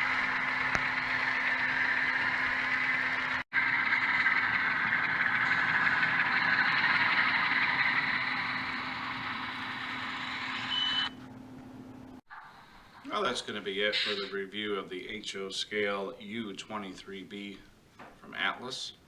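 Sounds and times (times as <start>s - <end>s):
model locomotive diesel engine sound: 0.0s - 11.1s.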